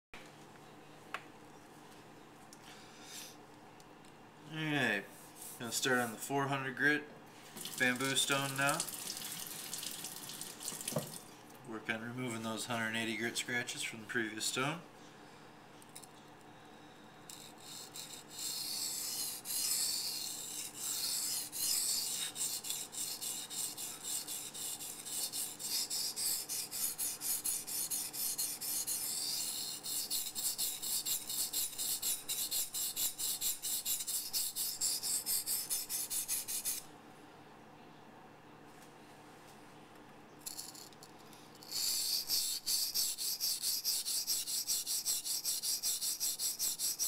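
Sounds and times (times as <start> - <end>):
knife scraping on whetstone: 17.3 - 36.8, 41.6 - 47.0.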